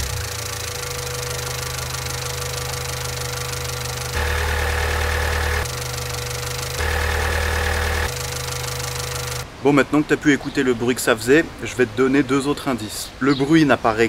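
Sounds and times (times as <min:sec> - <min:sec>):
car engine idling with clatter: 0:00.0 - 0:09.4.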